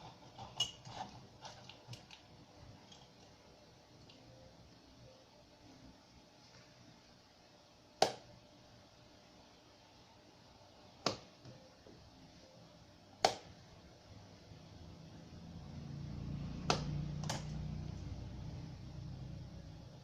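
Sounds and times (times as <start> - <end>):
low hum: 13.7 - 20.0.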